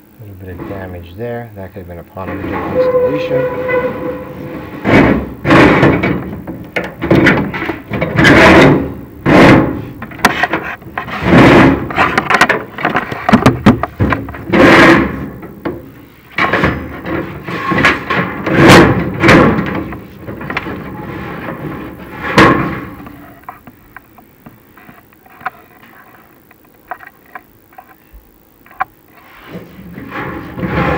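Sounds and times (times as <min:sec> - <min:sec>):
camera scraping inside metal flue: 0:02.2 - 0:08.9, 0:16.5 - 0:23.6, 0:29.2 - 0:30.9.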